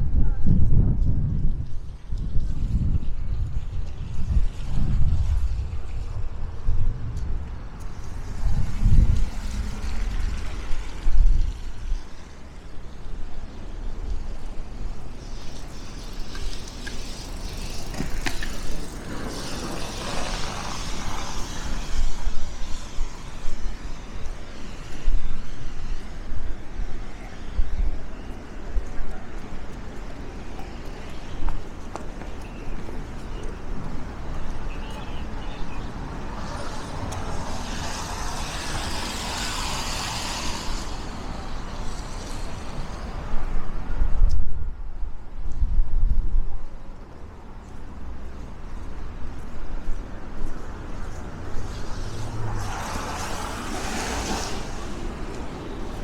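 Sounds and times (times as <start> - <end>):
wind rumble on microphone: 0.0 - 56.0
vehicle passing by: 15.3 - 26.1, 35.2 - 43.9, 50.5 - 56.0
car driving past: 51.3 - 56.0.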